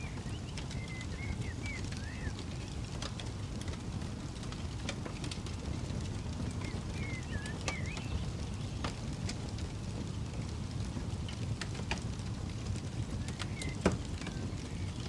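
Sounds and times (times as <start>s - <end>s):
bird chirping: 0.0s - 2.8s, 6.6s - 8.8s
campfire crackling and popping: 0.0s - 15.0s.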